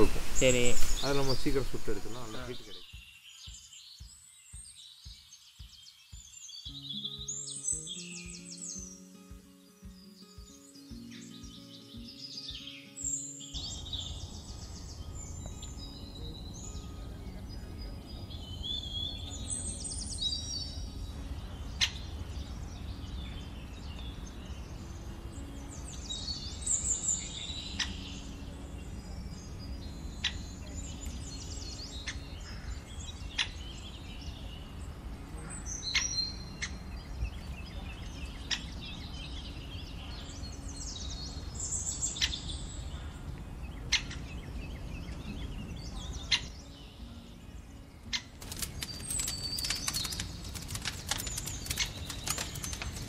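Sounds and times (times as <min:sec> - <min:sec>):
birds chirping: 0:00.0 - 0:53.0
sharp clicks: 0:48.4 - 0:53.0.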